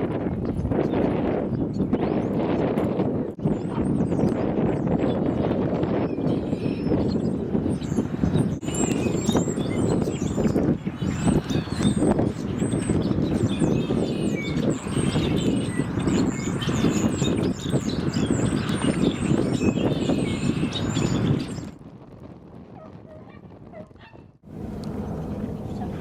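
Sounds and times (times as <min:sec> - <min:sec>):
birds chirping: 0:00.1 - 0:21.8.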